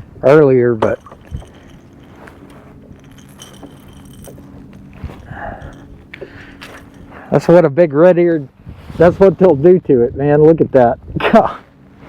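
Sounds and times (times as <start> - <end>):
steady low hum: 0.0 - 12.0
gear clinking and rattling: 0.8 - 7.4.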